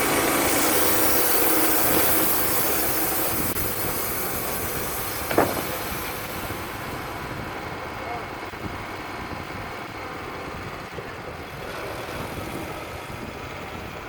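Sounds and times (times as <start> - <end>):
band sawmill sawing hiss: 0.0 - 8.4.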